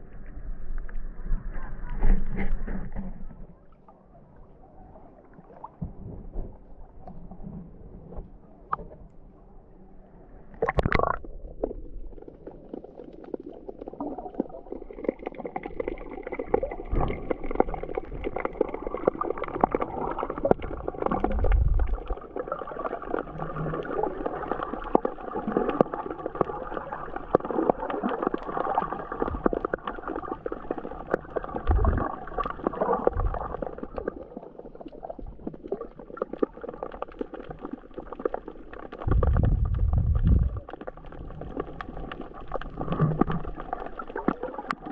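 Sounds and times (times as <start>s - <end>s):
underwater gurgling: 0.0s - 9.4s, 10.3s - 44.9s.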